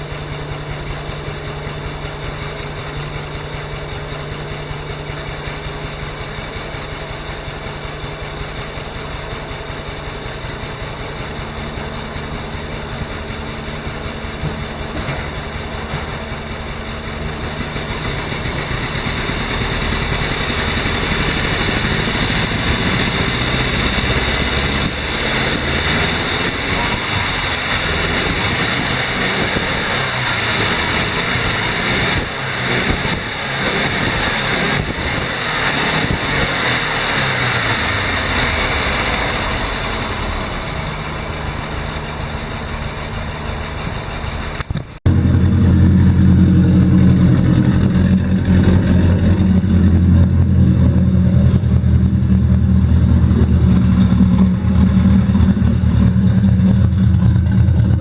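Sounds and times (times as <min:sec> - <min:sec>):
car exhaust engine running: 0:00.0 - 0:58.0.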